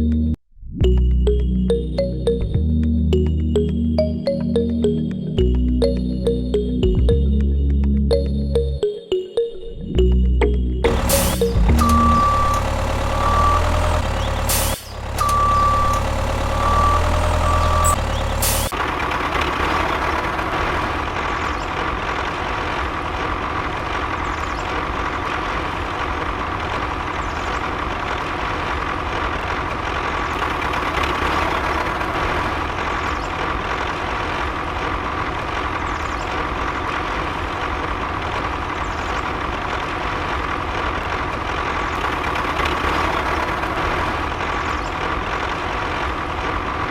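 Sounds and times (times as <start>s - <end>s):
repeated beeps: 10.8s - 18.7s.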